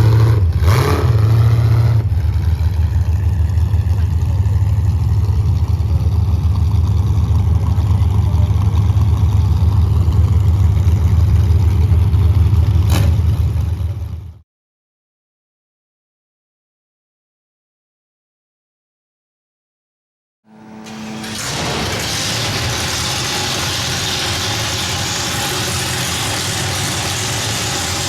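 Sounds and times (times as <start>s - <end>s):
vehicle engine deep rumble: 0.0s - 14.4s.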